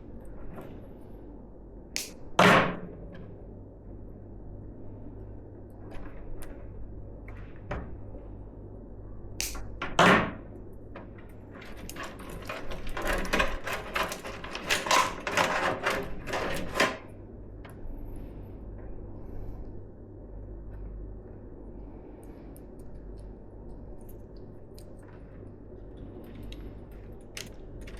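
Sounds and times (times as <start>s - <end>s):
rustling and clattering: 11.5s - 17.0s.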